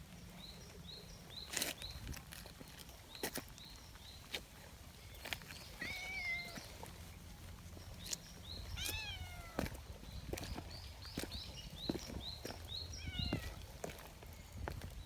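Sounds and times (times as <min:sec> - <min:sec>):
cat meowing: 0:05.8 - 0:06.7, 0:08.8 - 0:09.6, 0:13.0 - 0:13.6.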